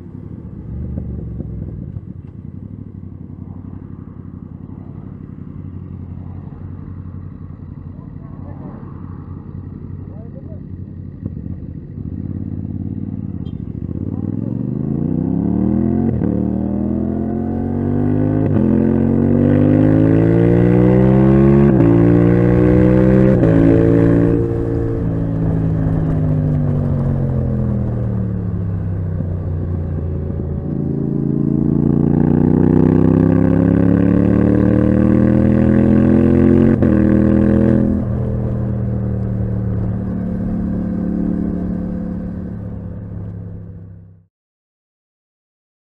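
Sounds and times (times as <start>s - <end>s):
motorcycle engine revving: 0.0s - 44.3s.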